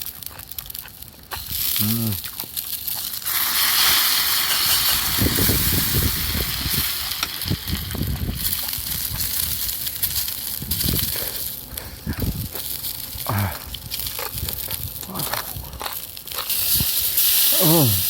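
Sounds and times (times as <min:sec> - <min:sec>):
crunching chewing: 0:00.0 - 0:03.6, 0:07.9 - 0:18.0
meat sizzling over fire: 0:00.0 - 0:18.0.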